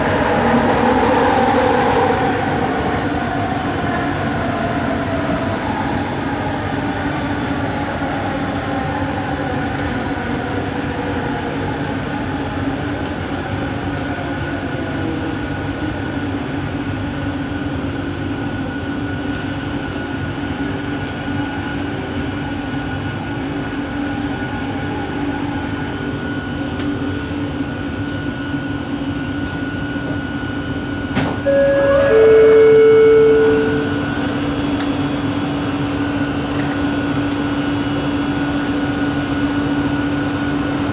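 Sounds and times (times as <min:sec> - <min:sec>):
train running noise: 0:00.0 - 0:40.9
two-note tone: 0:31.4 - 0:35.0.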